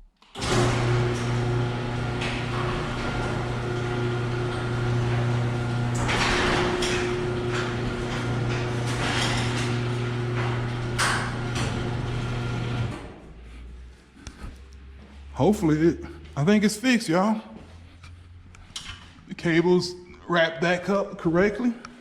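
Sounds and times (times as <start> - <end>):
garage door clattering on rails: 0.3 - 13.2
garage door opener motor hum: 0.3 - 13.4.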